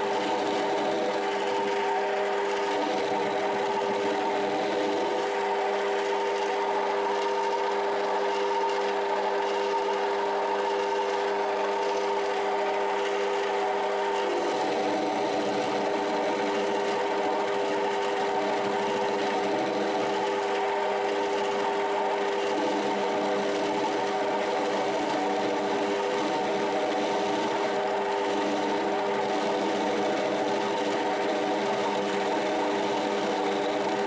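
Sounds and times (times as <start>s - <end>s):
metal lathe motor whine: 0.0s - 34.0s.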